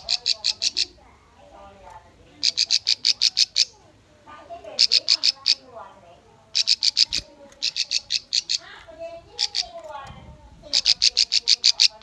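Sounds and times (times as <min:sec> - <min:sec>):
soft bird chirps and warbles: 0:06.5 - 0:10.1.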